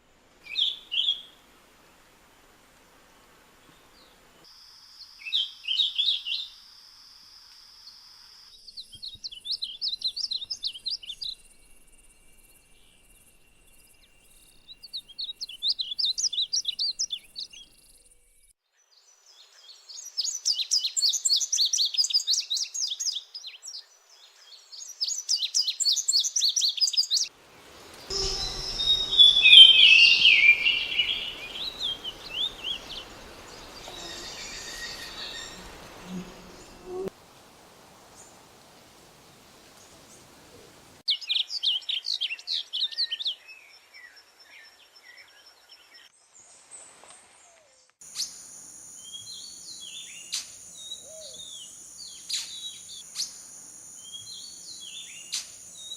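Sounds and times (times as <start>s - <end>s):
lower warbled bird song: 8.5s - 37.1s, 54.0s - 55.9s
songbird chattering song: 8.6s - 11.8s, 12.4s - 18.1s, 24.7s - 37.1s.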